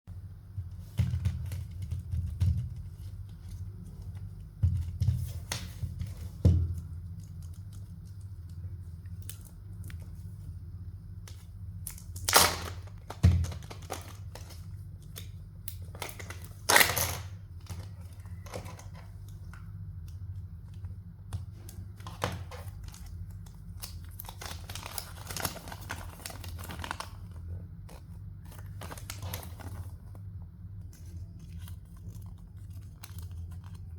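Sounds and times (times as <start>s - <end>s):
wrappers crinkling and tearing: 11.8s - 19.0s, 22.0s - 30.1s, 31.0s - 33.9s.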